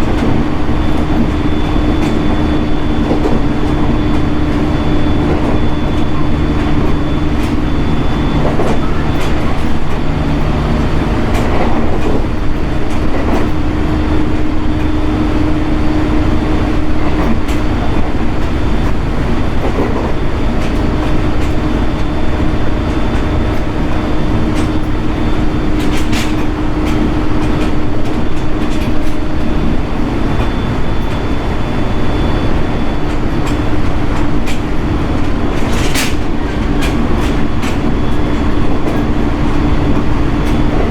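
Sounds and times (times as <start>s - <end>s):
rail joint clicks: 0.0s - 40.9s
train motor whine: 0.0s - 40.9s
train wheels rumbling on rail: 0.0s - 40.9s.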